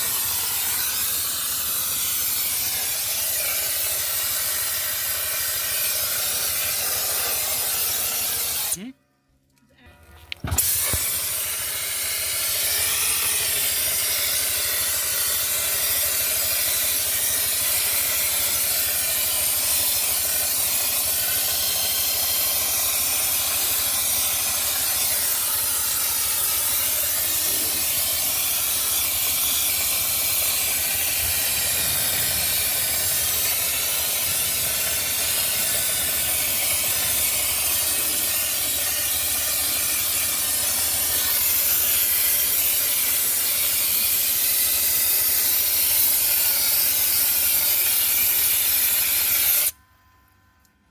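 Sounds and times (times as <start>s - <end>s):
compressed air blasting hiss: 0.0s - 8.8s, 10.4s - 49.8s.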